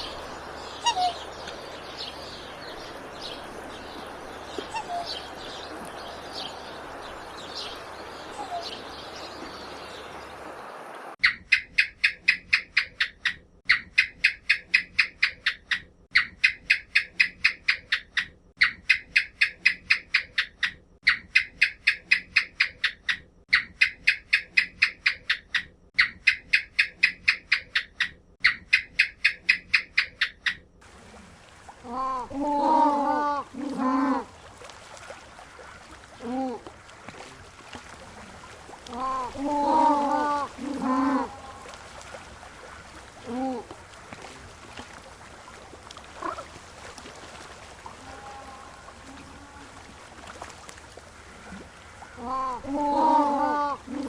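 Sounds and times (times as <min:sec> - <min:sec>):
steady background hiss: 0:00.0 - 0:11.2, 0:30.8 - 0:54.0
bird chirps: 0:00.0 - 0:30.6.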